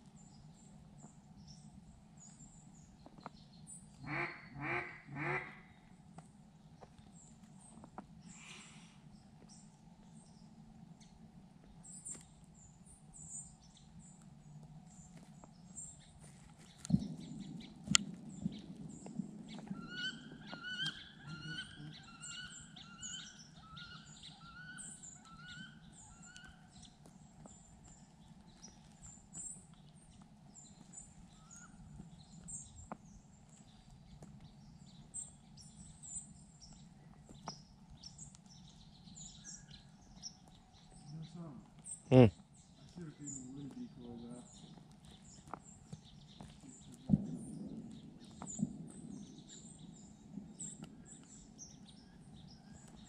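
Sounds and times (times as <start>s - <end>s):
birds chirping: 0.1s - 53.0s
bird singing repeated notes: 19.6s - 26.5s.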